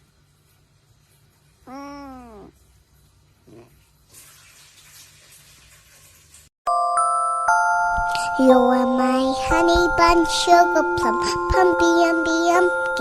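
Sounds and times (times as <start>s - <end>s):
cat meowing: 1.7s - 2.6s.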